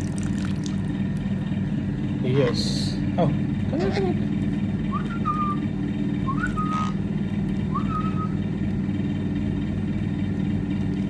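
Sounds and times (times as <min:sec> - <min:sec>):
low mechanical hum: 0:00.0 - 0:11.0
person whistling: 0:04.9 - 0:05.6, 0:06.3 - 0:06.9, 0:07.7 - 0:08.4.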